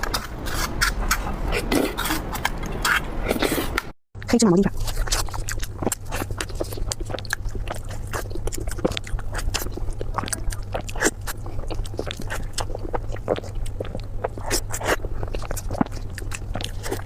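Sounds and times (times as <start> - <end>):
steady low hum: 0.0 - 17.0
chewing mouth smacks and clicks: 4.7 - 17.0.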